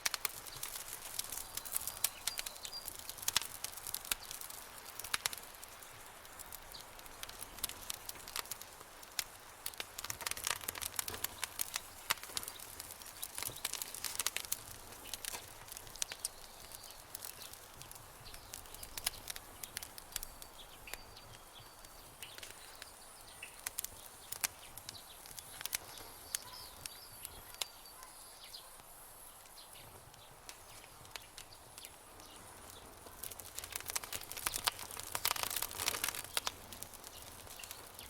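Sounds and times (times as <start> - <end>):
campfire crackling: 0.0 - 38.0
faint high chirps: 25.8 - 28.8.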